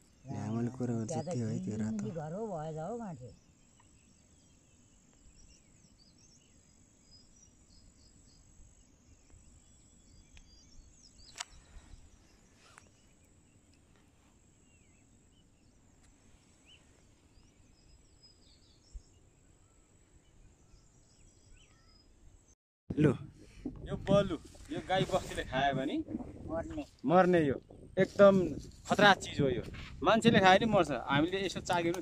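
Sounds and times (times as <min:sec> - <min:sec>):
insect drone: 0:00.0 - 0:22.0.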